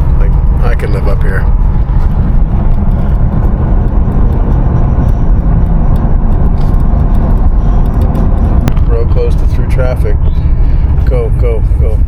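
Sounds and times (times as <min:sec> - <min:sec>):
van engine and tyre rumble: 0:00.0 - 0:12.0.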